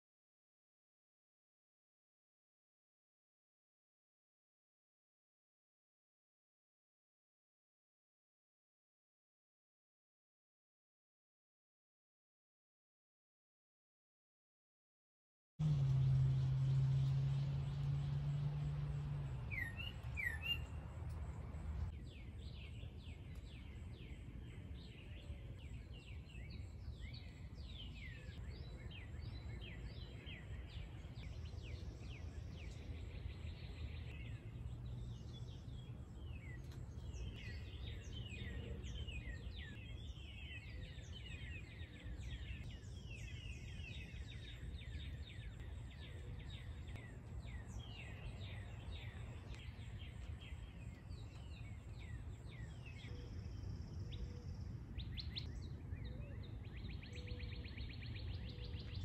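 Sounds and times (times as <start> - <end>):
louder low hum: 15.6 - 21.9
low background hum: 15.6 - 21.9
songbirds chirping: 15.6 - 59.0.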